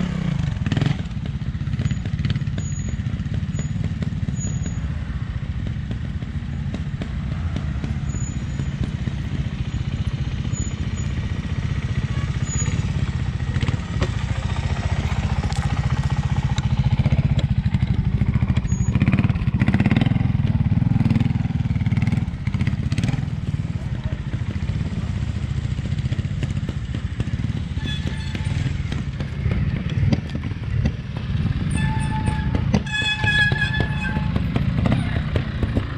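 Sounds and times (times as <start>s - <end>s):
motorcycle engine thumping: 5.5s - 35.9s
sharp knocks and clatters: 25.8s - 35.9s.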